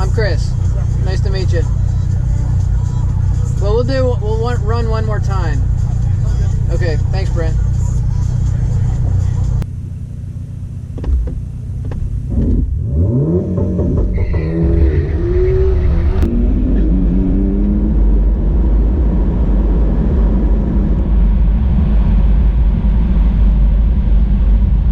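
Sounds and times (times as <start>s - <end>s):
road and wind noise: 0.0s - 24.9s
car accelerating hard: 10.9s - 24.9s.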